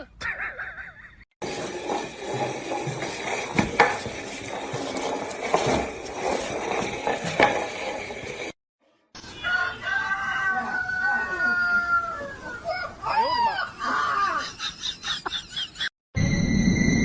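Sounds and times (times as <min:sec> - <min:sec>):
clattering with sharp knocks: 0:01.4 - 0:08.5.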